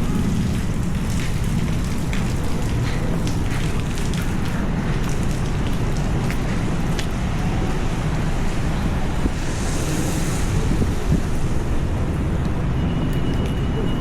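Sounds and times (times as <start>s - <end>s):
heavy rain on street: 0.0s - 14.0s
traffic rumble: 0.0s - 14.0s
wind on microphone: 6.6s - 12.8s.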